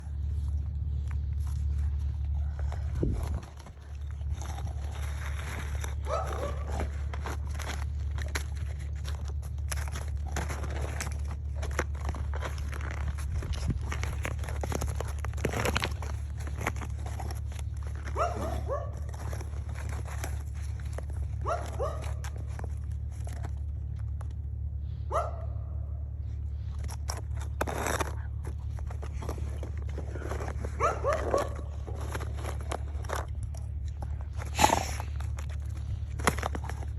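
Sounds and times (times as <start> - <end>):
dog crunching ice: 0.0 - 25.5, 26.2 - 36.9
steady low hum: 0.0 - 36.9
dog barking: 6.0 - 6.8, 18.2 - 19.1, 21.4 - 22.2, 25.1 - 25.8, 30.8 - 31.7.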